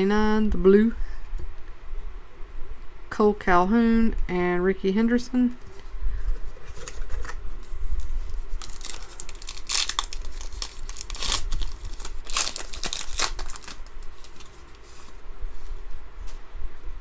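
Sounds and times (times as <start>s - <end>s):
wrapper tearing and crinkling: 8.5s - 14.8s.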